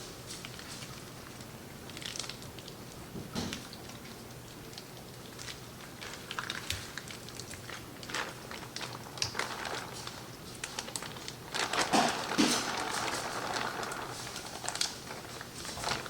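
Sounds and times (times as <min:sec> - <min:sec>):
scraping and rustling: 0:05.9 - 0:16.0.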